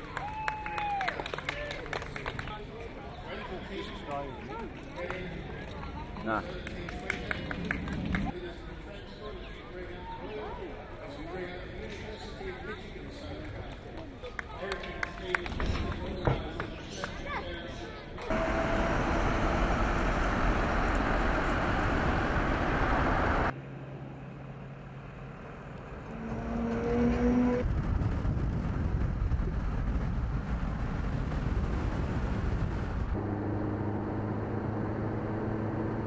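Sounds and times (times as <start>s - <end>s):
steady vehicle hum: 18.2s - 36.0s
loud vehicle rushing noise: 18.3s - 23.6s, 25.5s - 36.0s.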